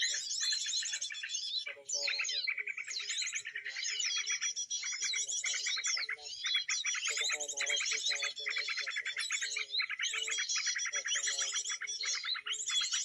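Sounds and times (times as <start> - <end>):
songbirds chirping and trilling: 0.0 - 13.0.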